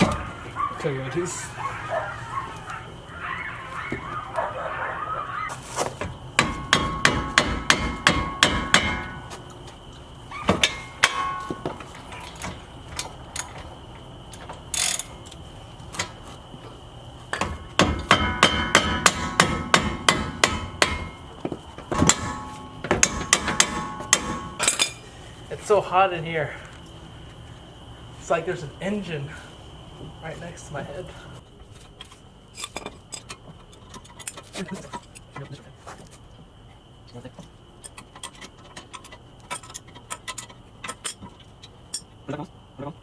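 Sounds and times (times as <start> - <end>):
hammer striking metal: 6.4 - 9.3, 10.6 - 11.8, 17.4 - 21.2, 21.9 - 25.0.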